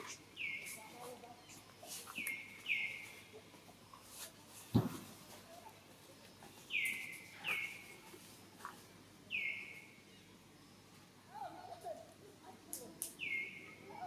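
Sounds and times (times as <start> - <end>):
bird calling: 6.7 - 8.2, 9.3 - 10.0.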